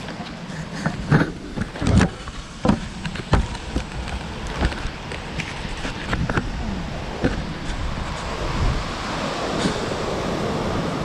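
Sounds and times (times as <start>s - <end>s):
gusty storm wind: 0.0s - 11.0s
sudden thumps and knocks: 1.0s - 3.9s.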